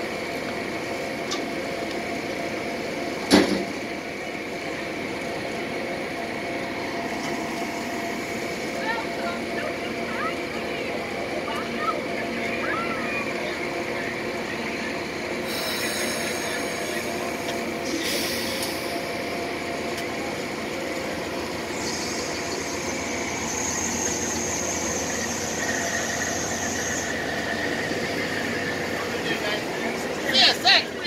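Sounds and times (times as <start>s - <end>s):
train wheels rumbling on rails: 0.0s - 31.0s
lower squeal: 15.4s - 19.3s, 21.6s - 29.0s.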